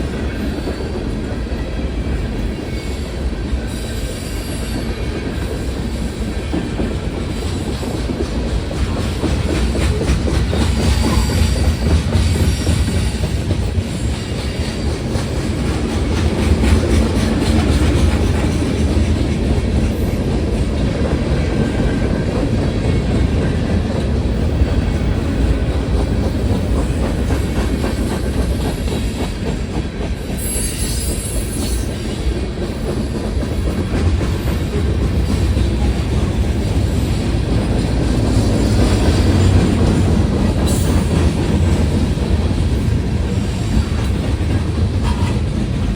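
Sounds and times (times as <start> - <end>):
train low rumble: 0.0 - 45.9
train wheels clattering on rails: 0.0 - 45.9
high-pitched wheel squeal: 30.4 - 31.9.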